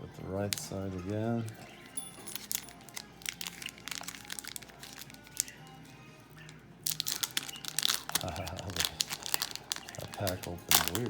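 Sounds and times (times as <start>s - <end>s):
music: 0.0s - 11.0s
wrapper crinkling and tearing: 2.3s - 5.7s, 6.3s - 11.0s.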